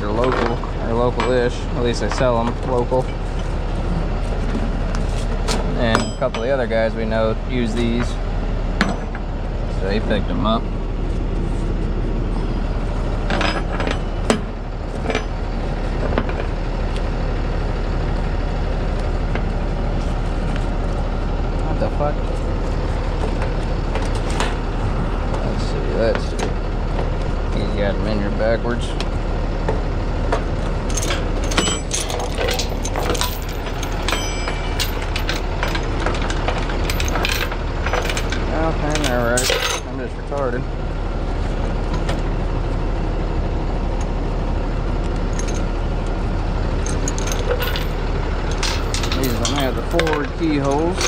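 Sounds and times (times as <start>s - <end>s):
truck engine idling: 0.0s - 51.0s
metallic clinks of chain hardware: 30.9s - 35.8s, 36.8s - 39.8s, 46.8s - 51.0s.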